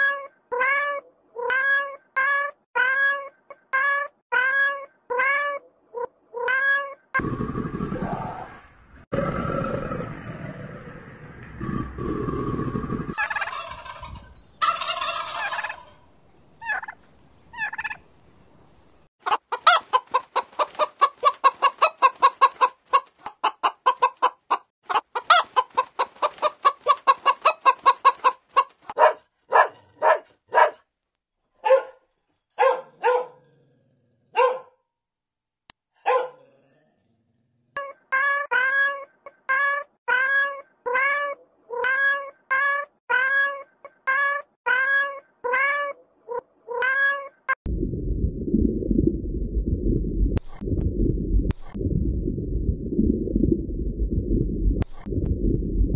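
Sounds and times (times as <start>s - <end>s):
cat meowing: 0.0s - 7.0s, 37.8s - 47.5s
turkeys gobbling: 13.1s - 18.0s
fowl clucking: 13.2s - 16.0s, 16.6s - 18.0s, 19.2s - 29.0s.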